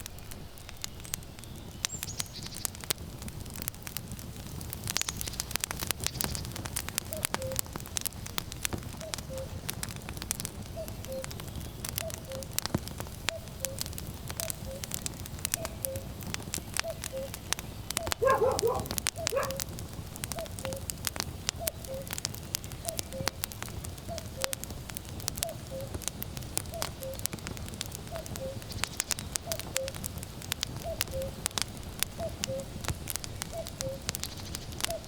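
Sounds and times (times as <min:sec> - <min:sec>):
firewood crackling and popping: 0:00.0 - 0:35.0
cuckoo calling: 0:07.1 - 0:07.6, 0:09.0 - 0:09.6, 0:10.8 - 0:11.4, 0:12.0 - 0:12.6, 0:13.3 - 0:14.9, 0:16.8 - 0:19.7, 0:21.6 - 0:22.2, 0:24.1 - 0:24.6, 0:26.7 - 0:27.3, 0:28.1 - 0:30.0, 0:30.8 - 0:31.4, 0:32.2 - 0:32.7, 0:33.5 - 0:34.1.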